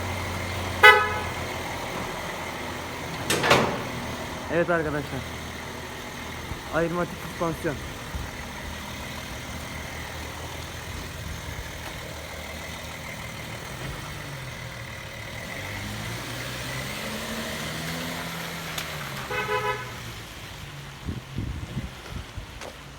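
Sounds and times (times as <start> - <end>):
car engine driving off: 0.0 - 22.9
car horn toot: 0.7 - 1.6, 19.2 - 20.1.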